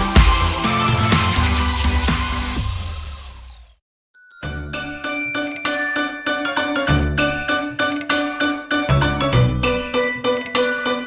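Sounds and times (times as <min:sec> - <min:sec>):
background music with steady beat: 0:00.0 - 0:03.1.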